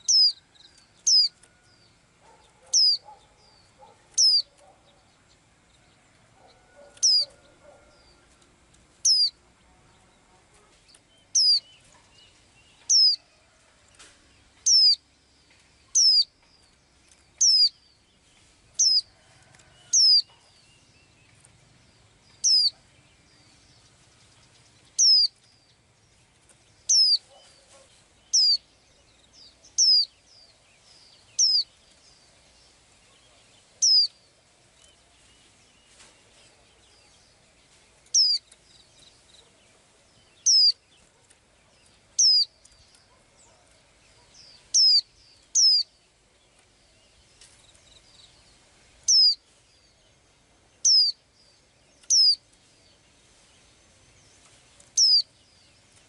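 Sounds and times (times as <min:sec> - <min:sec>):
high-pitched bird chirps: 0:00.0 - 0:00.4, 0:02.7 - 0:03.1, 0:04.2 - 0:04.5, 0:07.0 - 0:07.4, 0:09.1 - 0:09.4, 0:11.4 - 0:11.7, 0:12.9 - 0:13.2, 0:14.7 - 0:15.0, 0:15.9 - 0:16.3, 0:17.4 - 0:17.7, 0:18.8 - 0:19.1, 0:22.5 - 0:22.8, 0:25.0 - 0:25.3, 0:26.9 - 0:27.2, 0:28.4 - 0:28.6, 0:29.8 - 0:30.1, 0:31.4 - 0:31.7, 0:33.8 - 0:34.1, 0:38.2 - 0:38.4, 0:40.5 - 0:40.8, 0:42.2 - 0:42.5, 0:44.8 - 0:45.9, 0:49.1 - 0:49.4, 0:50.9 - 0:51.2, 0:52.1 - 0:52.4, 0:55.0 - 0:55.3.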